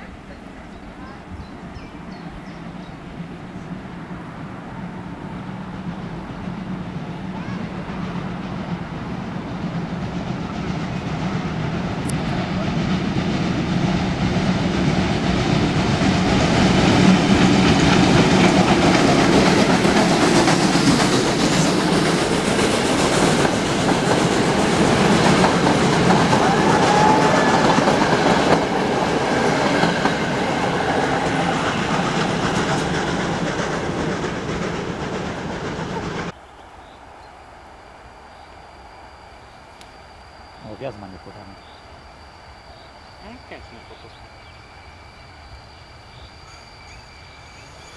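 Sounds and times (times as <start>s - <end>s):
steam locomotive passing: 0.0s - 47.9s
train wheels clattering: 5.8s - 36.4s.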